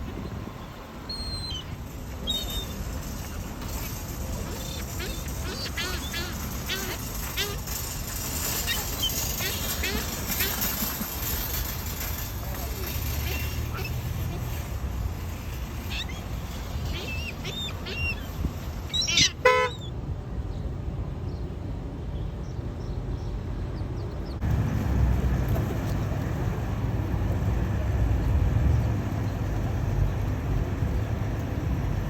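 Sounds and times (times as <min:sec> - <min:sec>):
low outdoor rumble: 0:00.0 - 0:32.0
birds chirping: 0:00.1 - 0:14.6, 0:15.8 - 0:19.9
loud harsh bird call: 0:03.7 - 0:11.2, 0:15.8 - 0:19.9.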